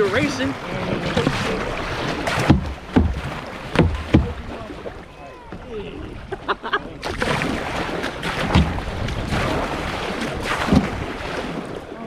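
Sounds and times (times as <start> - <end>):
river water splashing and rushing: 0.0 - 12.0
heavy low thumps: 0.8 - 4.6
wind buffeting microphone: 7.2 - 12.0.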